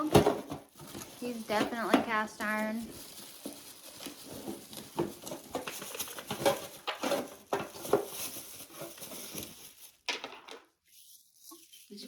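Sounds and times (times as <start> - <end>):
rustling: 0.1 - 12.0.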